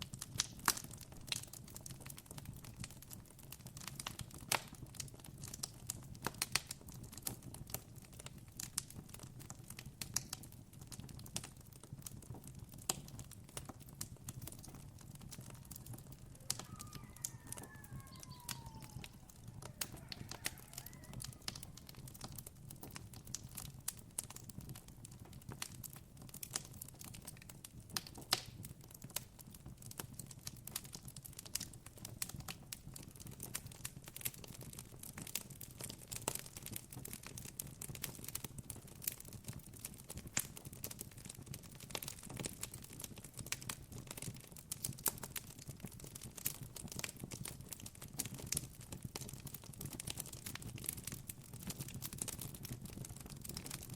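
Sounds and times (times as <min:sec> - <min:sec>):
campfire crackling and popping: 0:00.0 - 0:53.9
bird chirps: 0:16.5 - 0:20.0.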